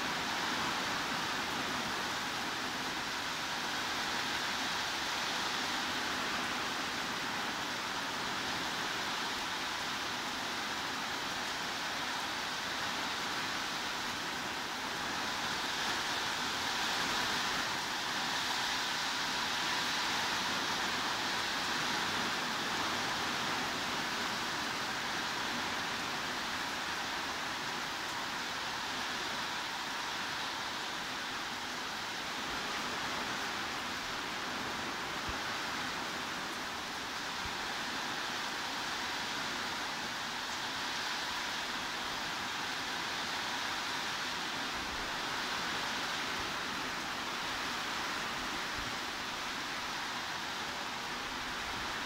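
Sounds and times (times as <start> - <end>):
heavy rainfall: 0.0 - 52.0.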